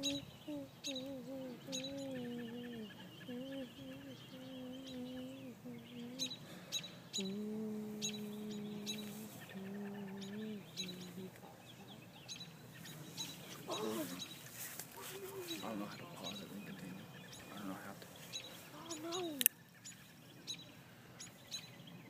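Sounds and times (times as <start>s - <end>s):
birds chirping: 0.0s - 22.0s
low hum stepping between pitches: 7.2s - 11.4s.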